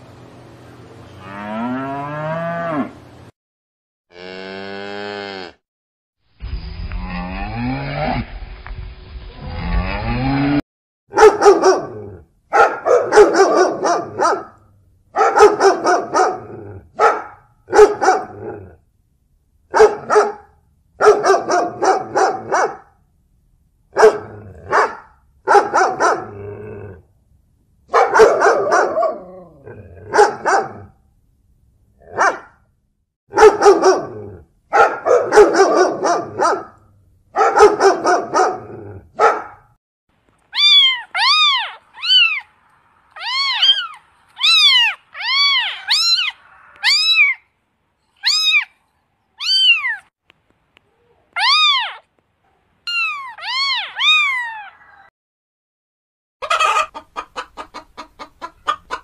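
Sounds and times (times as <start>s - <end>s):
dog barking: 11.1s - 14.6s, 15.2s - 18.5s, 19.7s - 23.0s, 23.9s - 26.4s, 27.9s - 29.3s, 30.1s - 30.9s, 32.1s - 32.6s, 33.3s - 36.8s, 37.4s - 39.8s
cat meowing: 40.5s - 42.5s, 43.1s - 47.4s, 48.2s - 48.7s, 49.4s - 50.1s, 51.3s - 52.1s, 52.9s - 55.1s.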